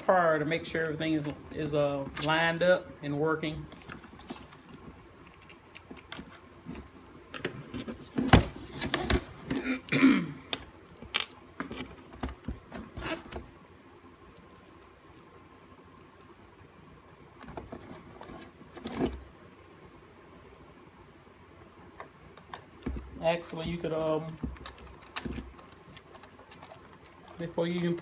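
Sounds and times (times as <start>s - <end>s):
handling clicks and rattles: 22.0s - 28.0s.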